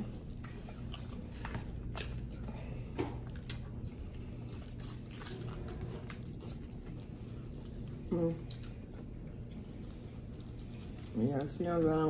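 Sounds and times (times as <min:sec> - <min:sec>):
chewing crisp fried fish: 0:00.0 - 0:12.0
steady low hum: 0:00.0 - 0:12.0
small crunches: 0:03.2 - 0:12.0.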